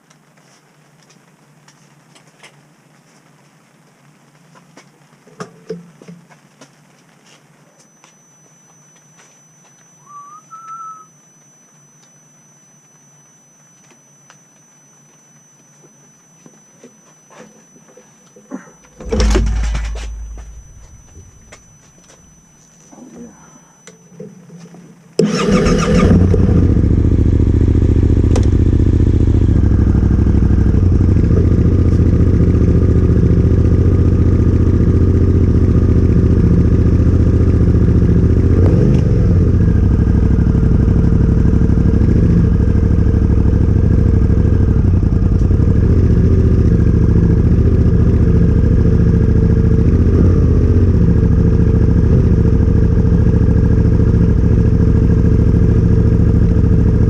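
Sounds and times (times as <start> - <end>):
motorcycle engine starting and idling: 18.8 - 21.8, 25.2 - 57.0.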